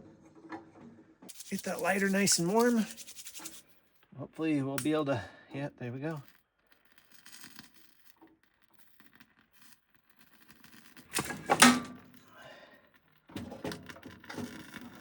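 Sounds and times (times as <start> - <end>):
metal stove door clanking shut: 11.2 - 12.0.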